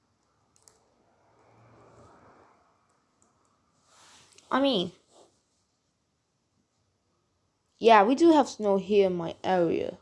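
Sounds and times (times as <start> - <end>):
soft breath-like hiss: 3.8 - 4.5.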